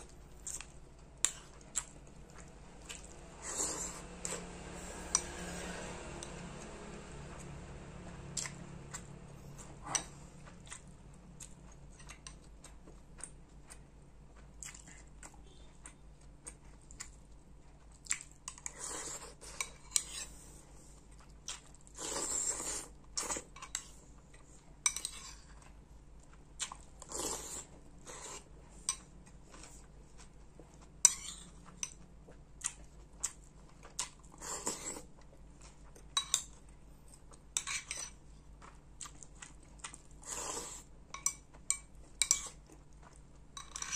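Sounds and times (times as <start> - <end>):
chewing: 0.0 - 5.6, 6.2 - 43.9
metal spoon scraping soup bowl: 3.4 - 5.9, 18.7 - 20.4.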